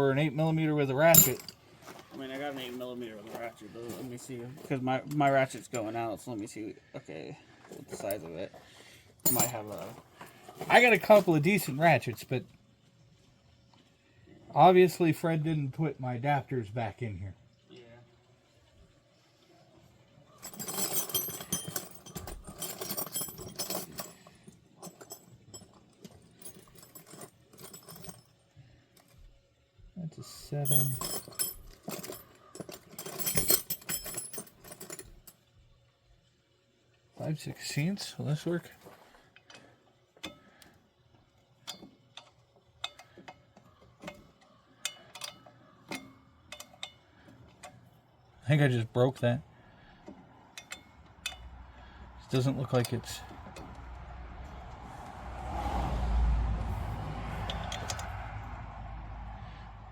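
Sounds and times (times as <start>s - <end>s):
tools clinking in a toolbox: 1.0s - 1.6s, 7.8s - 8.4s, 9.2s - 10.0s, 20.4s - 28.4s, 30.5s - 35.4s, 41.6s - 47.8s, 50.5s - 51.5s, 57.3s - 58.6s.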